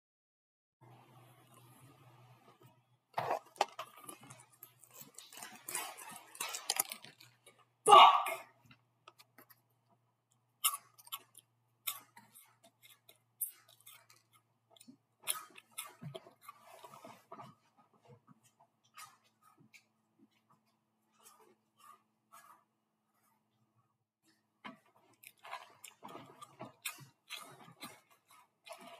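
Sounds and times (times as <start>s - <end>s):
person chewing crunchy cereal: 3.2s - 7.8s, 10.4s - 23.3s, 24.2s - 28.9s.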